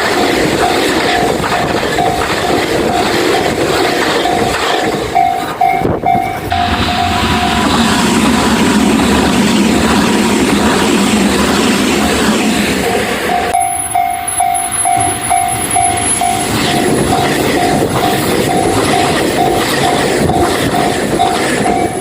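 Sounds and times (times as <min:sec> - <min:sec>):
crossing warning bell ringing: 0:00.0 - 0:08.4, 0:12.8 - 0:22.0
train wheels rumbling on rails: 0:00.0 - 0:22.0.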